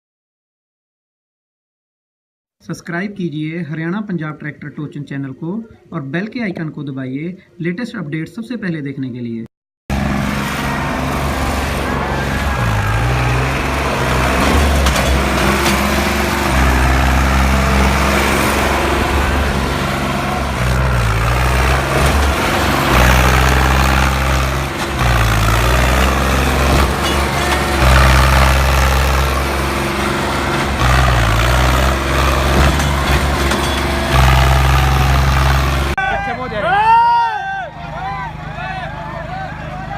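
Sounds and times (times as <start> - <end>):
diesel tractor engines under load: 9.9 - 39.9.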